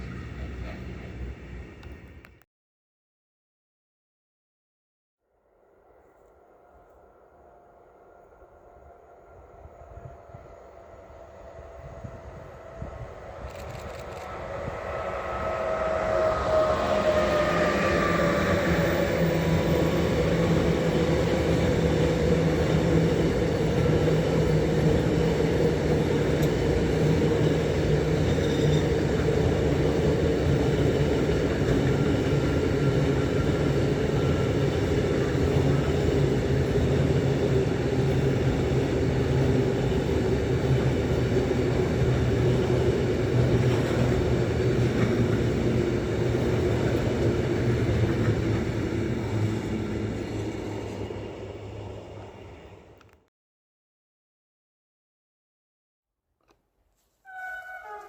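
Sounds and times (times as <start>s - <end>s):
train wheels rumbling on rails: 0.0s - 2.3s, 6.7s - 53.1s.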